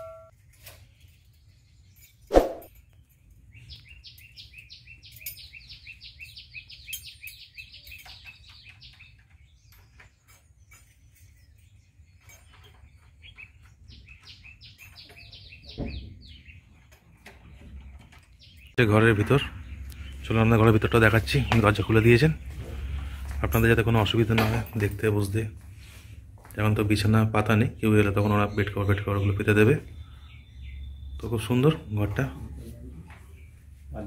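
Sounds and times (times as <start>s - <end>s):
bird singing high sliding notes: 2.3s - 2.7s.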